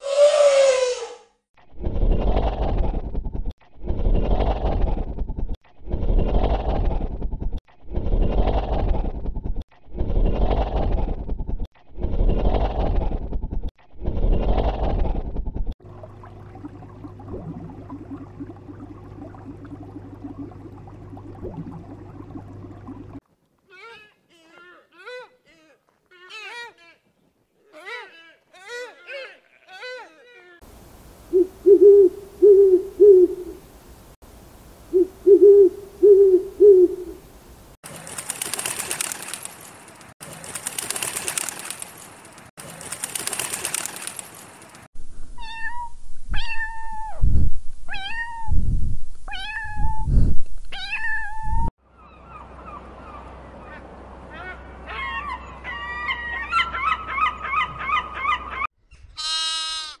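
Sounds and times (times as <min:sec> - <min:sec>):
low hoots: 0:31.3 - 0:33.6, 0:35.0 - 0:37.2
lamb bleating: 0:59.2 - 1:00.0.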